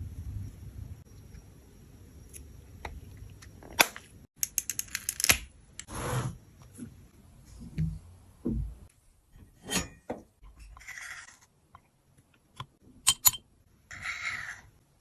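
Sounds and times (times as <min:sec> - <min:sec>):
sharp clicks and clinks: 0:13.0 - 0:13.5.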